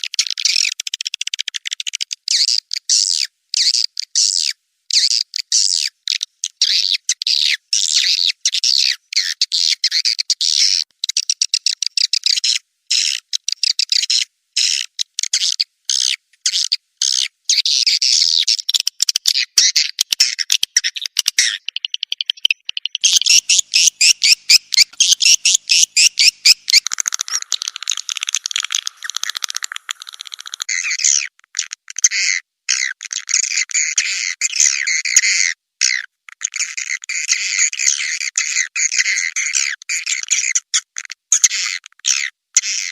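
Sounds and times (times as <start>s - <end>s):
swiftlets chirping and twittering: 19.4s - 31.2s
fast even clicks: 23.0s - 30.7s.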